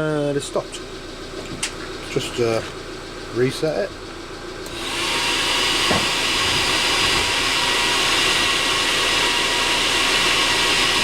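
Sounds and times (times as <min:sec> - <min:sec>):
heater blower fan whooshing: 0:04.6 - 0:11.0.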